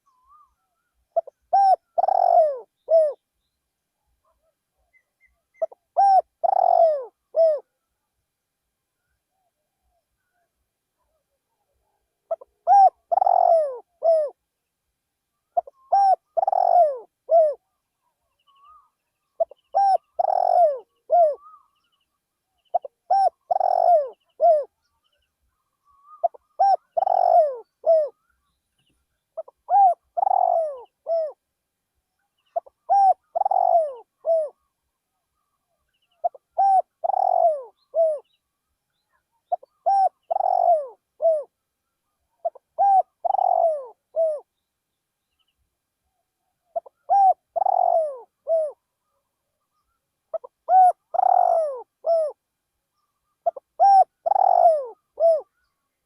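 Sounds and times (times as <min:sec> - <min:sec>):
dove cooing: 0:01.1 - 0:03.2, 0:05.3 - 0:07.7, 0:12.3 - 0:14.4, 0:15.5 - 0:17.8, 0:18.6 - 0:21.7, 0:22.7 - 0:24.8, 0:25.9 - 0:28.2, 0:29.4 - 0:31.4, 0:32.5 - 0:34.7, 0:36.1 - 0:38.3, 0:39.5 - 0:41.6, 0:42.4 - 0:44.5, 0:46.7 - 0:48.8, 0:50.3 - 0:52.4, 0:53.4 - 0:55.6.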